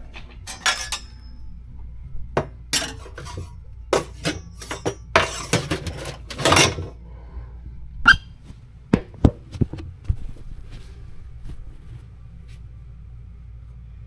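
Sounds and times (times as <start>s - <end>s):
steady low hum: 0.0s - 14.0s
metal clanking and clinking: 0.5s - 1.4s, 2.8s - 7.0s.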